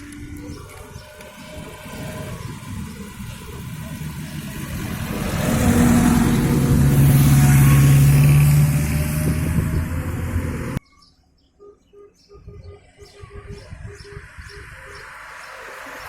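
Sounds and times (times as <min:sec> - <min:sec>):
vehicle engine driving past: 0:00.6 - 0:10.8.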